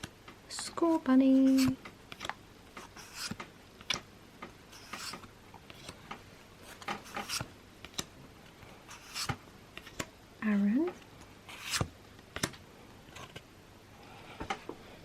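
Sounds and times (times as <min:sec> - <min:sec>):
cards swishing and tapping: 0:00.9 - 0:08.1, 0:08.9 - 0:10.1, 0:11.5 - 0:12.6.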